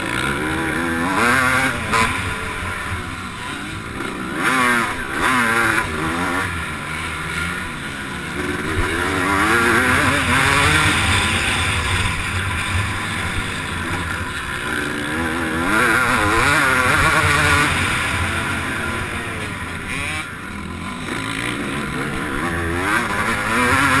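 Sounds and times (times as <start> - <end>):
motocross bike engine revving: 0.0 - 24.0.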